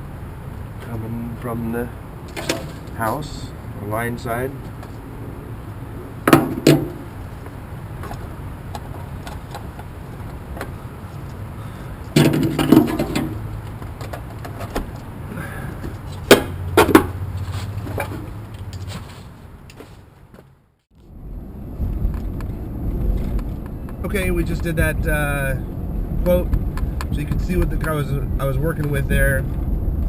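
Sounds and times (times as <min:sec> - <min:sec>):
handling knocks and clatters: 0:02.3 - 0:03.0, 0:12.1 - 0:15.1, 0:15.7 - 0:20.5.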